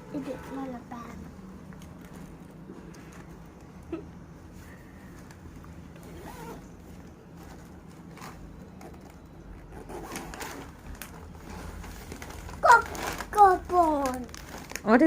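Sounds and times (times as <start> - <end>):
snack packets crinkling: 10.7 - 15.0.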